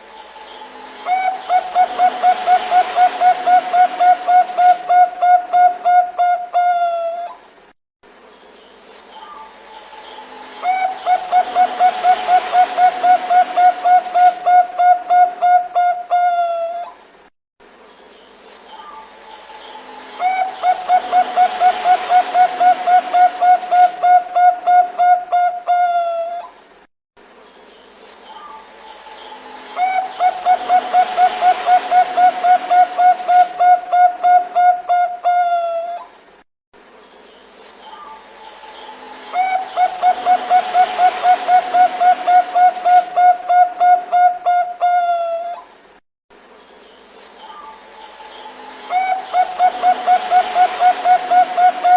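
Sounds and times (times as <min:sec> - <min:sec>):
steady background hiss: 0:00.0 - 0:51.9
dove cooing: 0:01.0 - 0:07.4, 0:10.6 - 0:17.0, 0:20.2 - 0:26.6, 0:29.2 - 0:36.1, 0:38.8 - 0:45.7, 0:48.9 - 0:51.9.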